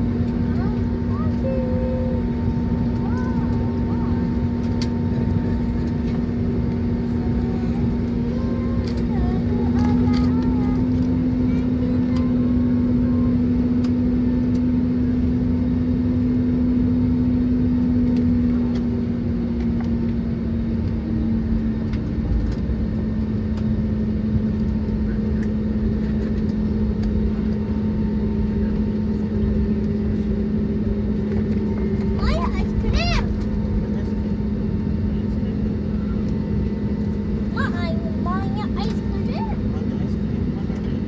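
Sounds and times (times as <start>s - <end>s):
aircraft engine hum: 0.0s - 41.0s
low rumble: 20.9s - 41.0s.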